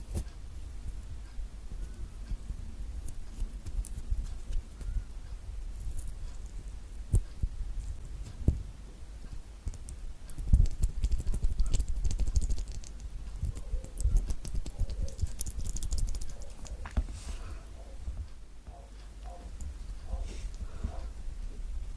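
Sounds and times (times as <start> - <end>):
orange rind peeling crackles: 10.6 - 16.8.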